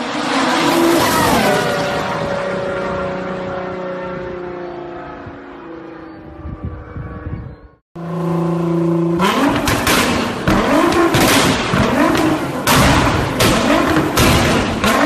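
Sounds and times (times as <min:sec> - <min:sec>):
car engine revving: 0:08.0 - 0:15.0
exhaust cracks: 0:09.2 - 0:15.0.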